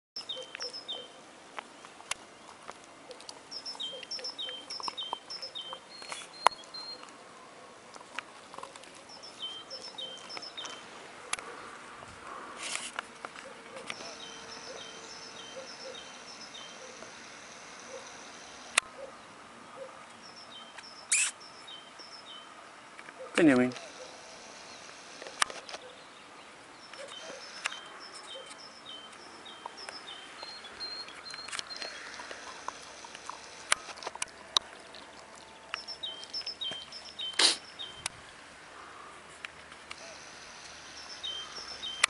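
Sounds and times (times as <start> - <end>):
small bird singing high notes: 20.3 - 22.4.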